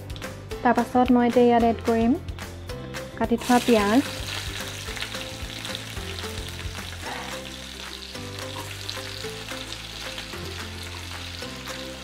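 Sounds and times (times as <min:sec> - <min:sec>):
onions sizzling in hot oil: 0:03.4 - 0:12.0.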